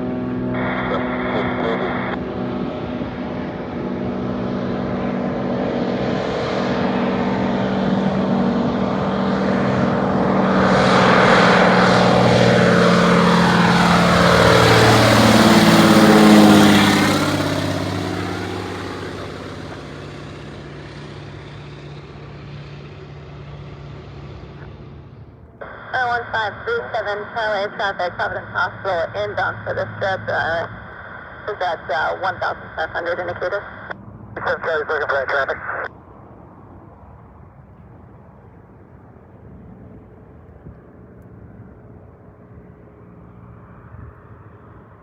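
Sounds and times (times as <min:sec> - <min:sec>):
propeller plane engine passing: 0:00.0 - 0:45.0.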